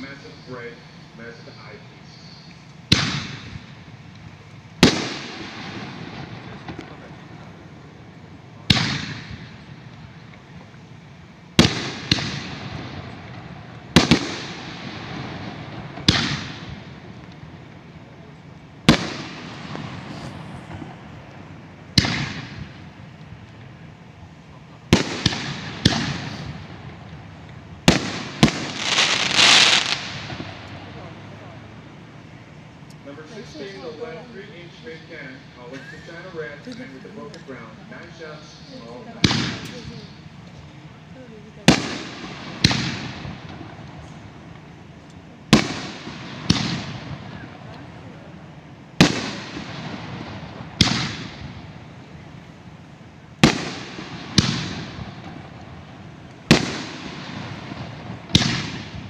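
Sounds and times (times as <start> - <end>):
fireworks crackling: 0.0 - 59.0
firework bangs with echo: 2.9 - 3.8, 4.8 - 10.3, 11.6 - 18.2, 18.8 - 23.0, 24.9 - 31.6, 39.1 - 40.2, 41.6 - 44.7, 45.5 - 48.2, 49.0 - 51.8, 53.4 - 59.0.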